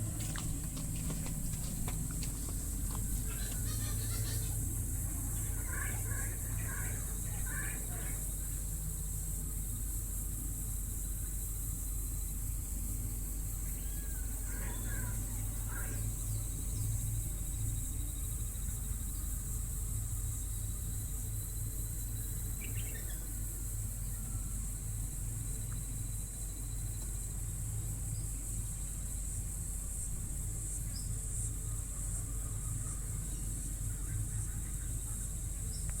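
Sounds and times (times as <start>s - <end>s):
steady low hum: 0.0s - 36.0s
high-pitched insect drone: 2.4s - 35.9s
short bird calls: 3.2s - 4.6s.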